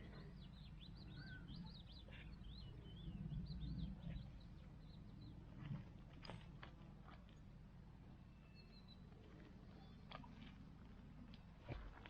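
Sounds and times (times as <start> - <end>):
small bird singing: 0.4 - 4.2.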